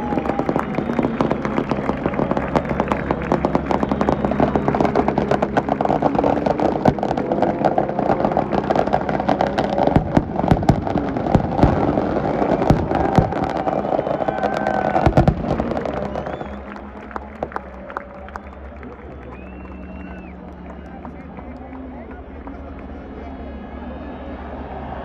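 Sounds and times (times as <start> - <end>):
engines running: 0.0 - 23.7
crackle of sharp bangs: 0.2 - 16.8.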